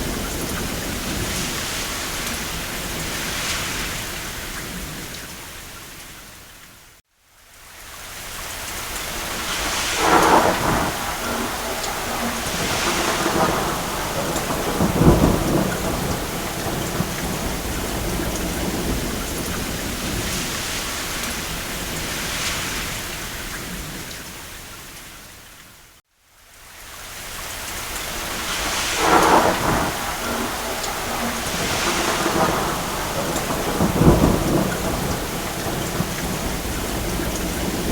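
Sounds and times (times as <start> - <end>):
thunder rolling: 0.0 - 5.1, 9.1 - 24.1, 28.1 - 37.9
heavy rain: 0.0 - 37.9.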